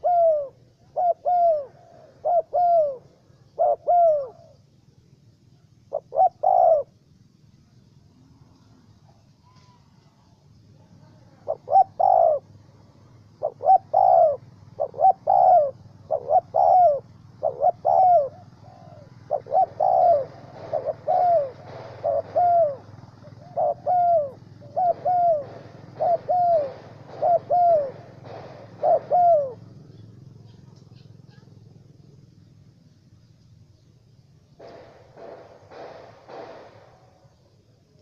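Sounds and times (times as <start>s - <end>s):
dove cooing: 0.0s - 4.8s, 5.5s - 7.1s, 10.8s - 32.3s.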